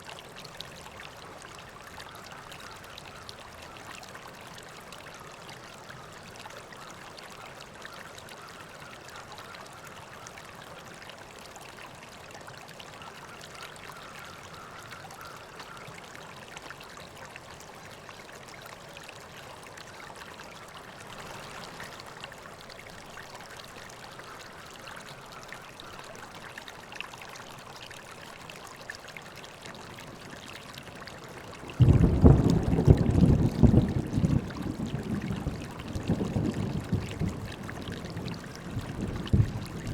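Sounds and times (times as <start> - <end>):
river water flowing: 0.0 - 39.9
deep rumble of thunder: 31.8 - 39.9.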